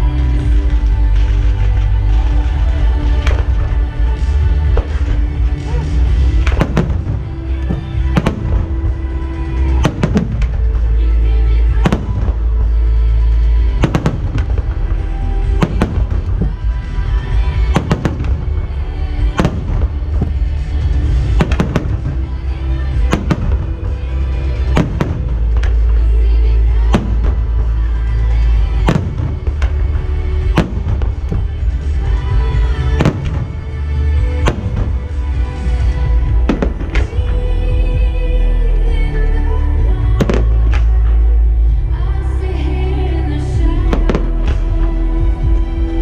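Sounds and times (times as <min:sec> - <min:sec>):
loud show music: 0:00.0 - 0:46.0
fireworks bursting: 0:00.2 - 0:38.2, 0:40.0 - 0:41.8, 0:43.7 - 0:46.0.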